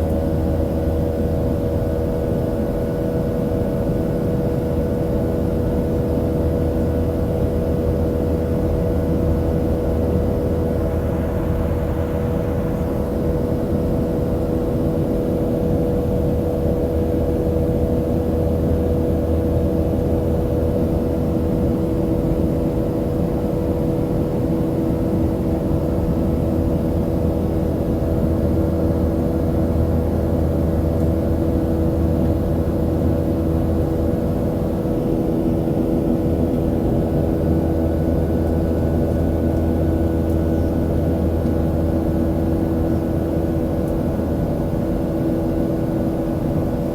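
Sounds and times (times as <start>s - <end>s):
airplane cabin drone: 0.0s - 46.9s.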